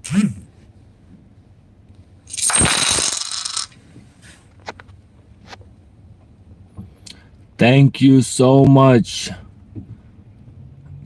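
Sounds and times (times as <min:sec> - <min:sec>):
jingling coins notification: 0:02.3 - 0:03.7.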